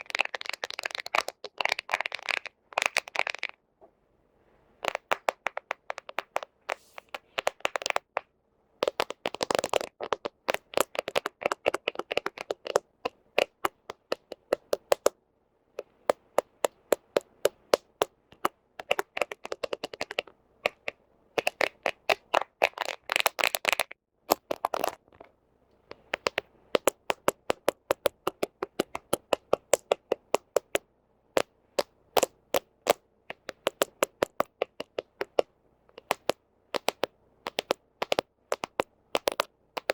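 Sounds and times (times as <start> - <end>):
fingernails tapping on phone: 4.8 - 15.2, 15.8 - 23.7, 25.9 - 30.8, 31.4 - 39.9.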